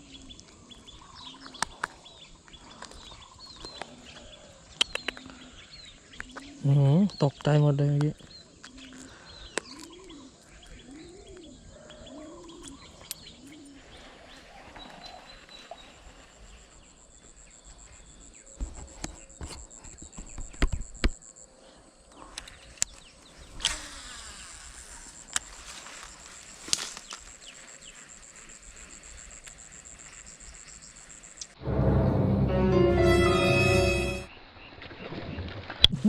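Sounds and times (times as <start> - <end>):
insect high buzz: 23.4 - 31.6.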